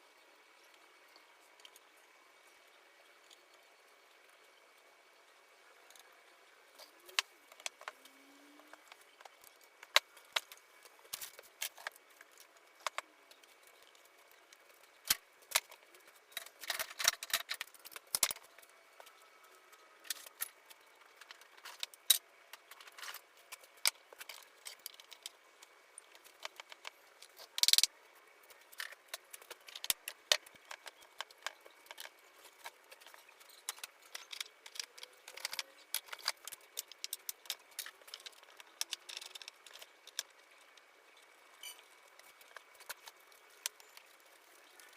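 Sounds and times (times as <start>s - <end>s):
wooden parts and tools clicking: 6.8s - 44.9s.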